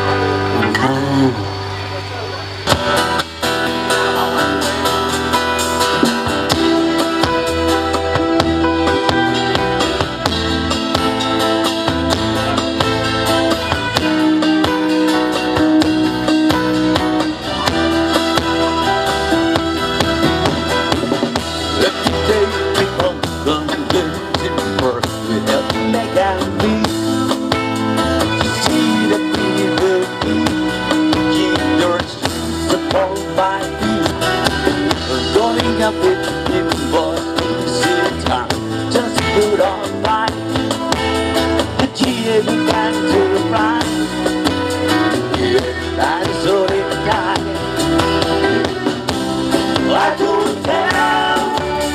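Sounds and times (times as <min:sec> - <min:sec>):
bass notes: 0:00.0 - 0:51.9
live band instrumental with guitar: 0:00.0 - 0:51.9.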